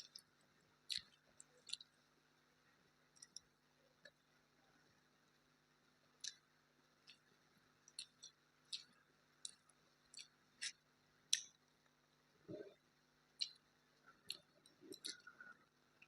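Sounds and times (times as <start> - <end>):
mouth clicks of chewing: 0.9 - 1.9, 3.2 - 4.2, 6.2 - 6.4, 7.9 - 11.6, 13.4 - 13.6, 14.2 - 15.6.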